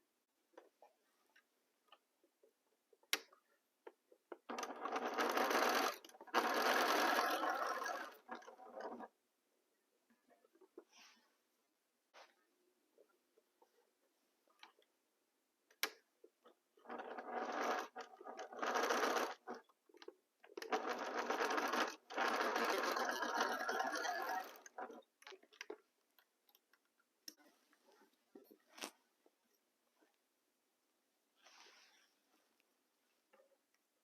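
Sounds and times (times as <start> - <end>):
sewing machine stitching: 4.4 - 9.2, 16.8 - 25.3.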